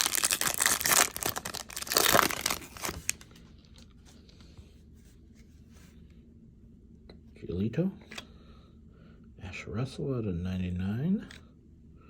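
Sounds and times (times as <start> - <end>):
wrapper tearing and crinkling: 0.0 - 3.2.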